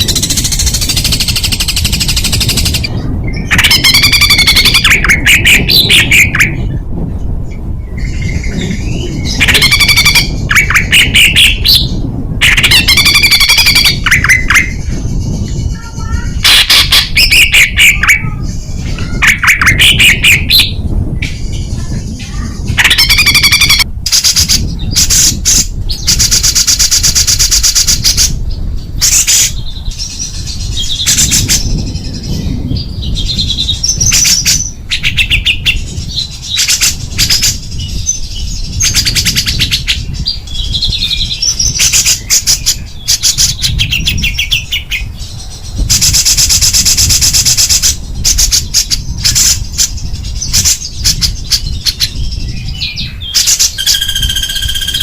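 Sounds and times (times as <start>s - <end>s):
songbird harsh rapid trills: 0.0s - 6.7s, 8.2s - 20.8s, 21.4s - 32.0s, 53.2s - 55.0s
bird whistled notes: 50.5s - 55.0s.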